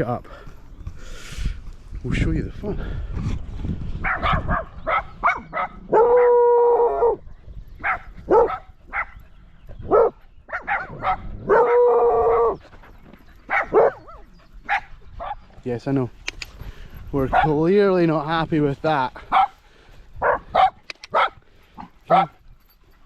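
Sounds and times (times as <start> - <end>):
dogs barking: 4.0 - 7.2, 7.8 - 15.5, 17.3 - 17.6, 19.2 - 19.6, 20.2 - 22.4
dog howling: 5.9 - 7.2, 10.8 - 12.6.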